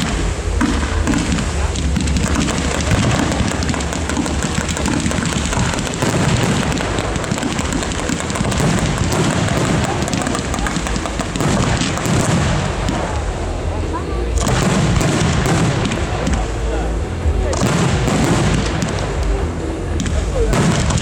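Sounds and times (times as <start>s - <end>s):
fireworks bangs and crackles: 0.0s - 21.0s
low rumble of booms: 0.0s - 21.0s.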